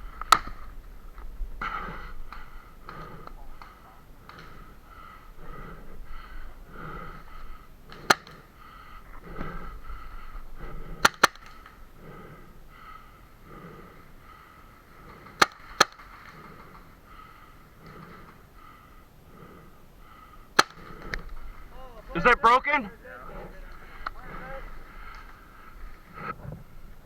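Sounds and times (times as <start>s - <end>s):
heavy breathing: 0.0s - 27.0s
paintball marker shots: 7.9s - 8.5s, 10.7s - 12.4s, 15.1s - 16.9s, 20.6s - 21.6s.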